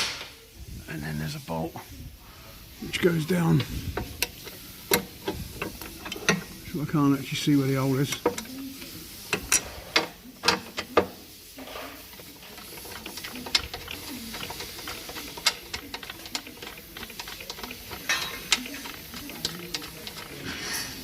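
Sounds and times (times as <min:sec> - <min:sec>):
metallic clicks and knocks of tools: 0:04.0 - 0:06.5, 0:12.1 - 0:21.0.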